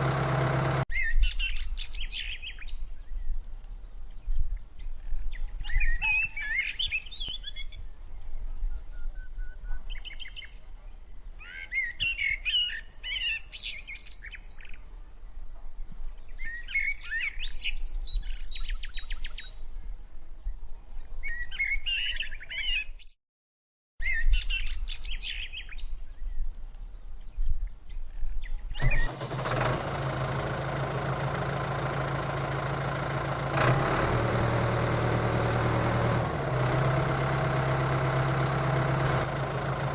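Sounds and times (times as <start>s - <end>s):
tractor motor humming: 0.0s - 0.9s, 28.8s - 39.9s.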